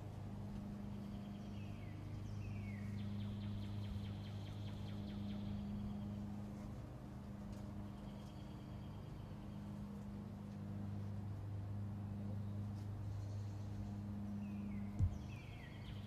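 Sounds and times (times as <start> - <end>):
steady low hum: 0.0 - 16.0
birds chirping: 0.5 - 6.5, 12.2 - 16.0.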